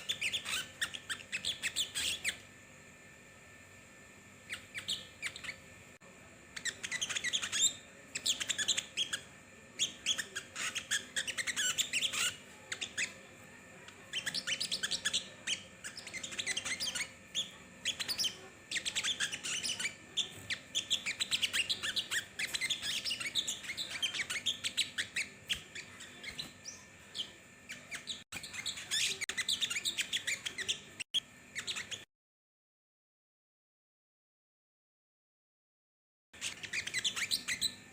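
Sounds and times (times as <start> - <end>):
small songbird twittering: 0.0 - 2.5, 4.5 - 5.7, 6.5 - 13.2, 13.9 - 32.0, 36.4 - 37.9.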